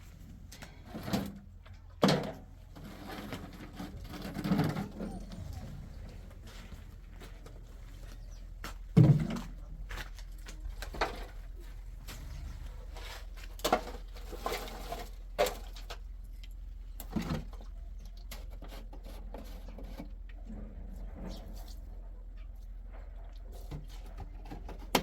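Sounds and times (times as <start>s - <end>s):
steady low hum: 0.0s - 18.3s
irregular knocks and thumps: 8.2s - 9.6s.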